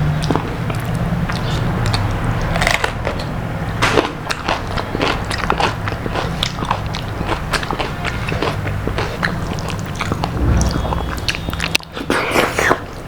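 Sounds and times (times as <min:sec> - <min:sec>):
crunching and chewing: 0:00.0 - 0:10.4
steady low hum: 0:10.2 - 0:11.8.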